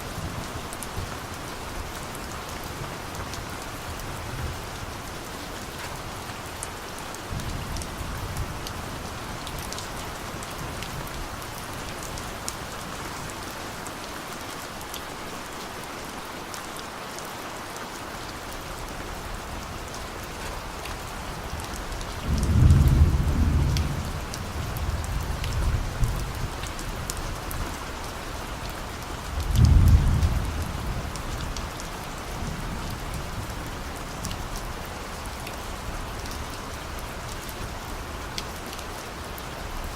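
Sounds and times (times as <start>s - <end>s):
steady rain hissing: 0.0s - 39.9s
distant thunder rumbling: 19.4s - 26.5s, 29.4s - 31.1s.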